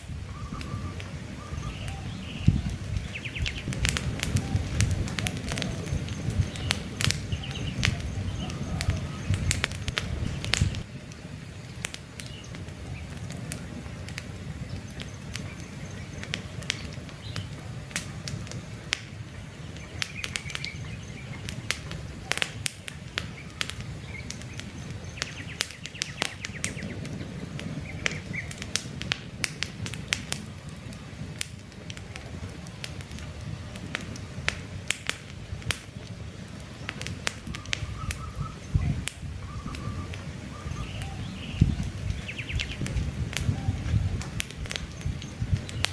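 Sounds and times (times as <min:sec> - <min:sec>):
campfire crackling and popping: 0:00.0 - 0:45.9
steady low rumble: 0:00.0 - 0:45.9
bird chirps: 0:00.3 - 0:04.7, 0:05.7 - 0:10.9, 0:23.2 - 0:27.0, 0:36.8 - 0:42.9.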